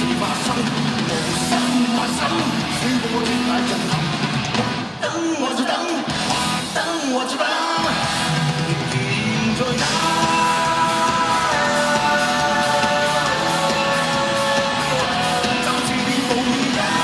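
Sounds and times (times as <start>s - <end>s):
electric guitar: 0.0s - 5.1s, 5.8s - 17.0s
lead singer singing: 0.0s - 17.0s
live rock band: 0.0s - 17.0s.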